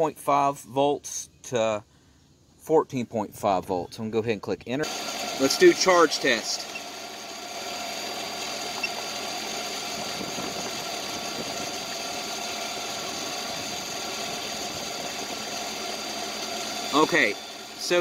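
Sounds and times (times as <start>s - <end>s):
car engine idling: 4.9s - 18.0s.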